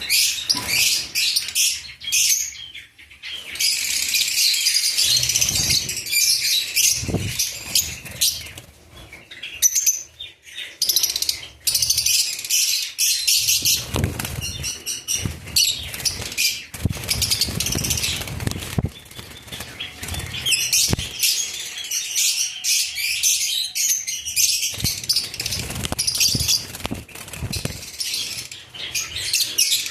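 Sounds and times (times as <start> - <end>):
birds chirping rapidly: 0.0 - 29.9
wings flapping: 6.9 - 8.7, 13.6 - 21.3, 24.7 - 28.4.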